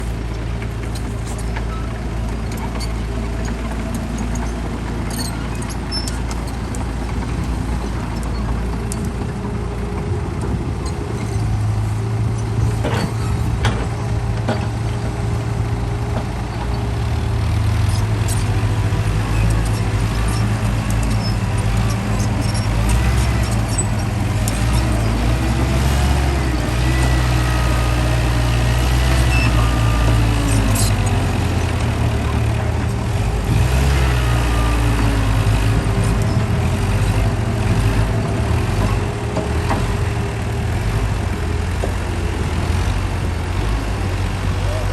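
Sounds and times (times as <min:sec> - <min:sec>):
heavy diesel engine running: 0:00.0 - 0:44.9.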